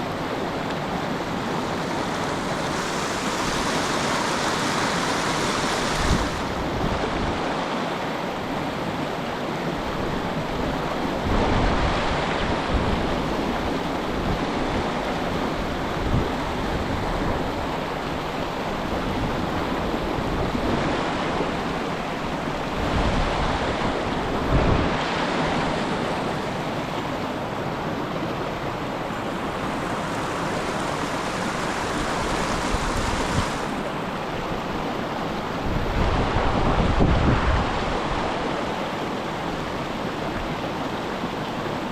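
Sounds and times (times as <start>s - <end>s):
river water flowing: 0.0s - 11.3s, 13.1s - 36.7s, 37.6s - 41.9s
wind buffeting microphone: 1.0s - 7.6s, 29.2s - 34.0s, 35.6s - 38.4s.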